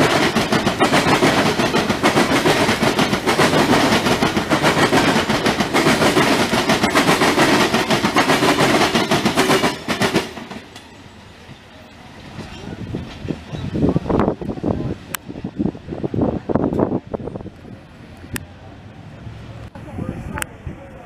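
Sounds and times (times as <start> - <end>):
train wheels clattering over rail joints: 0.0 - 11.1
faint train rumble: 0.0 - 21.0.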